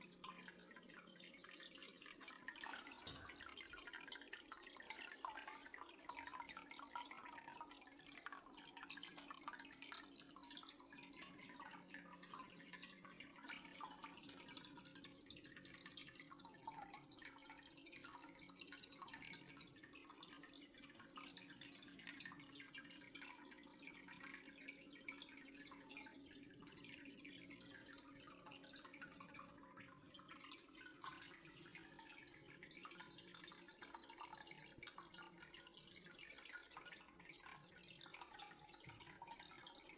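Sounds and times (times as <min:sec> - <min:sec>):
faint water dripping: 0:00.0 - 0:39.9.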